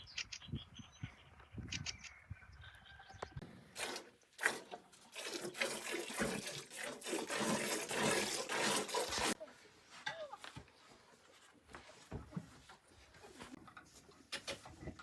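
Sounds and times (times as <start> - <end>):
liquid pouring with splashing hiss: 3.8 - 9.4.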